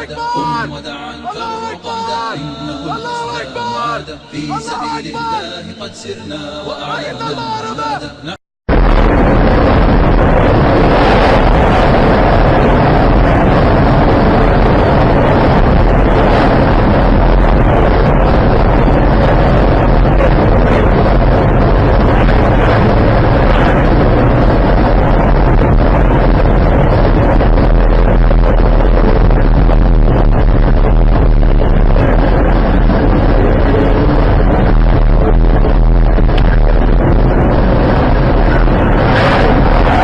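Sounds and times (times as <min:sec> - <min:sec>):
road and wind noise: 0:08.7 - 0:40.0.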